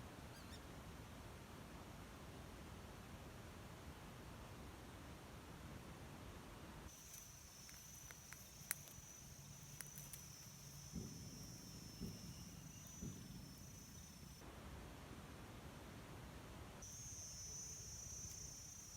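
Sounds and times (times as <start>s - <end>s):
high-pitched insect buzz: 6.9s - 14.4s, 16.8s - 18.9s
soft low thuds: 10.7s - 14.2s.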